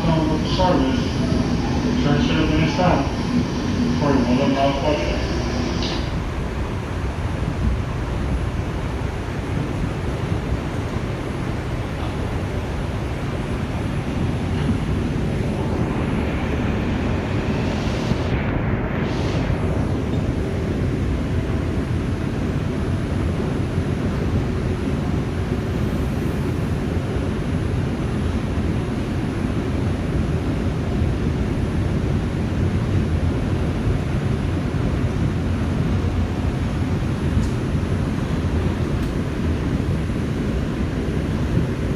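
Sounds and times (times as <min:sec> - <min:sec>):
faint high whine: 0:00.0 - 0:11.3
subway wheels rumbling on rails: 0:00.0 - 0:41.9.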